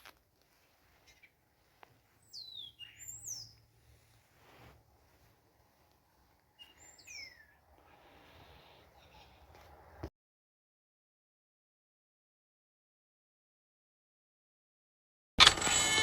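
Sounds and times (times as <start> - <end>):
faint whistled bird chirps: 2.2 - 3.6, 6.6 - 7.6.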